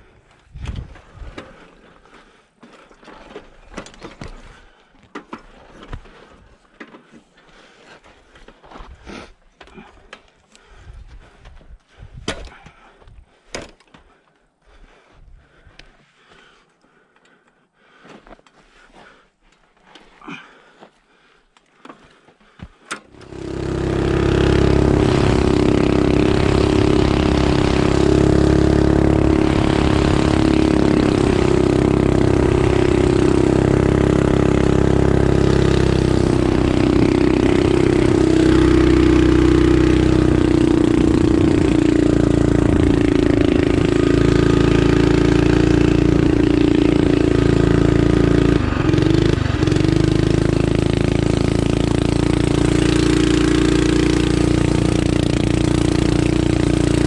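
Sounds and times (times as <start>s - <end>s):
small engine running: 23.0s - 57.0s.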